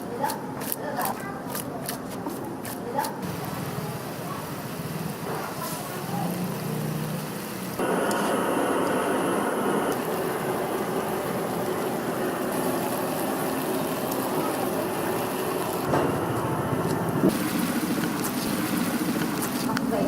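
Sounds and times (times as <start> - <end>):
food sizzling in a wok: 3.2 - 15.9.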